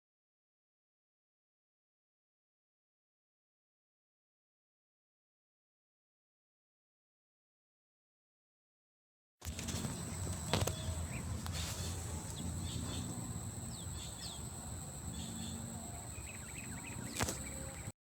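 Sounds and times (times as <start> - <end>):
low steady rumble: 9.5 - 17.9
faint bird chirps: 9.5 - 18.0.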